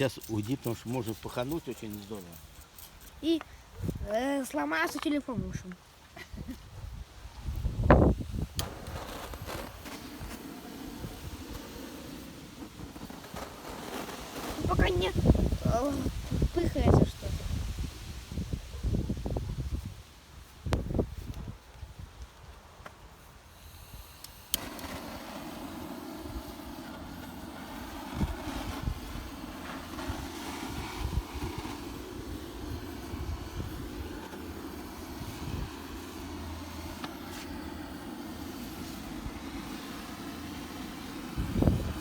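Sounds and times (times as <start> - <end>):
gas hissing: 7.5 - 18.0, 23.2 - 42.0.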